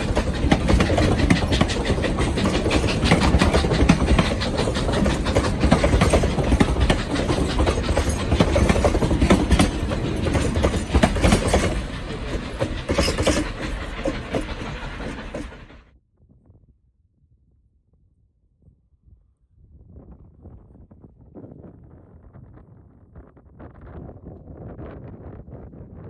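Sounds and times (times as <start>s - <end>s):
train wheels rumbling over rails: 0.0s - 16.0s.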